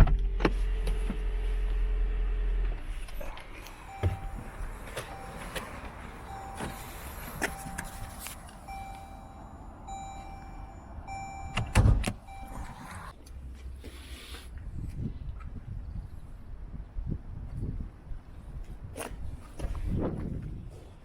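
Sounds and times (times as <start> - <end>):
warning beeper short beeps: 3.8 - 13.1.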